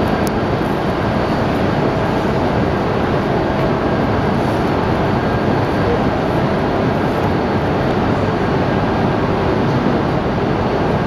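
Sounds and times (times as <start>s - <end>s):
train mechanical hum: 0.0s - 11.0s.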